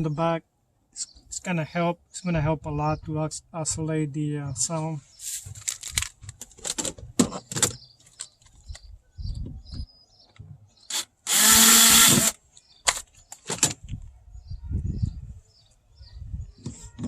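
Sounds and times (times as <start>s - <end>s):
power drill driving screw: 10.9s - 12.4s.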